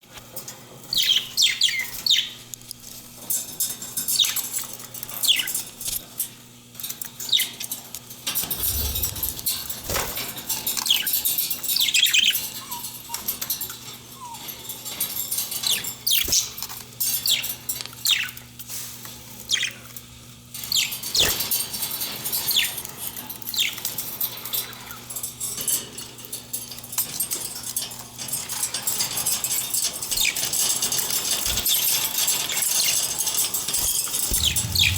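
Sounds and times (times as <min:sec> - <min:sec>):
rustling and wing flutter: 0:08.4 - 0:10.4
steady low hum: 0:08.5 - 0:10.2, 0:34.3 - 0:34.9
budgies chirping: 0:34.3 - 0:34.9.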